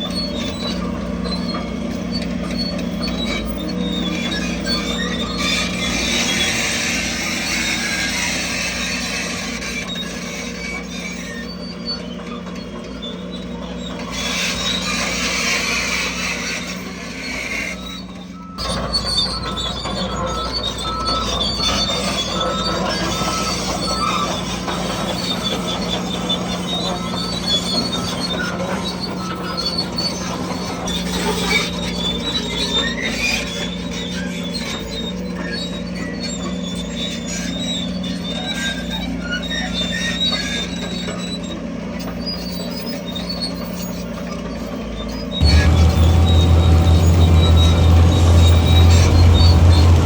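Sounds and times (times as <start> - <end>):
metallic track squeaks: 0.0 - 50.0
diesel engine drone: 45.4 - 50.0.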